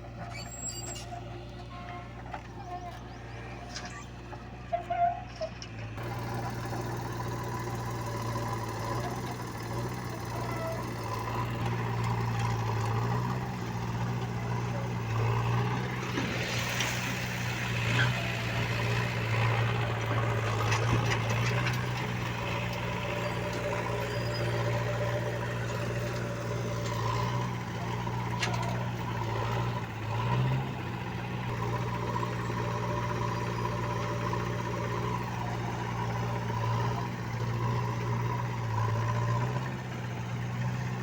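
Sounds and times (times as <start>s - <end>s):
diesel engine of heavy machinery: 0.0s - 41.0s.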